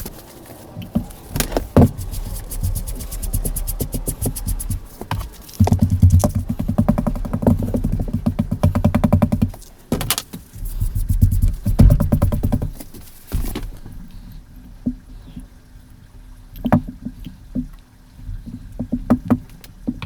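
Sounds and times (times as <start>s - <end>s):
heavier rumbling: 1.0s - 9.5s.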